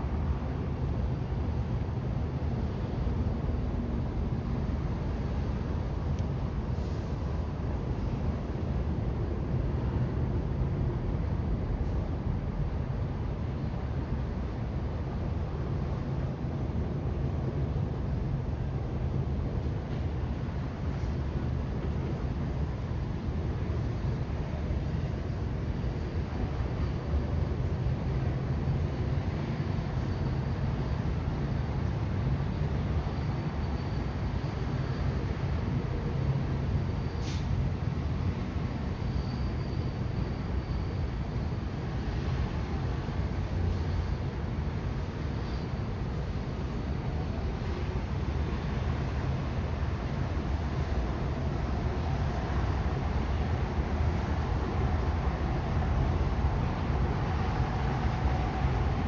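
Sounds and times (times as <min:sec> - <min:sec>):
low outdoor rumble: 0:41.7 - 0:59.0.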